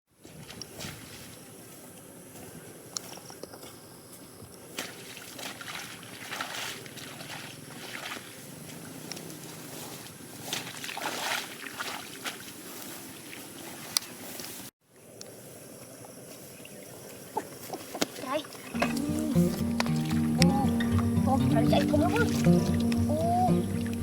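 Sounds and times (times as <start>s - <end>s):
shallow water sloshing and splashing: 4.7s - 13.9s.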